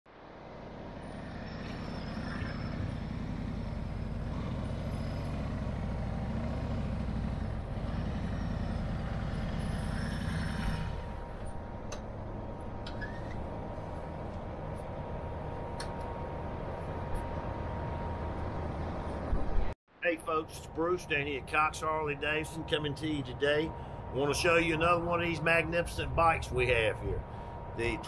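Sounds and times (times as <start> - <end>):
motorcycle engine idling: 2.2 - 11.4.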